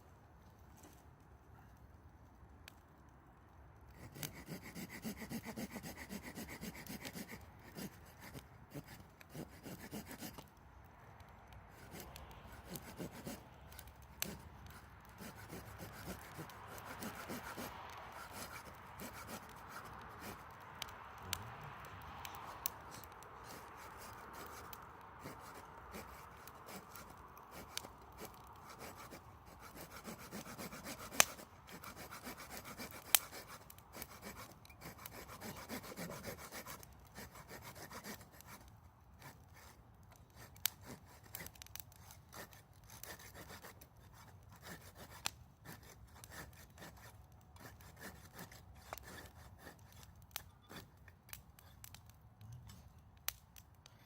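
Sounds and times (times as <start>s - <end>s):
wood fire crackling: 0.0s - 4.5s, 38.1s - 43.2s, 48.7s - 54.0s.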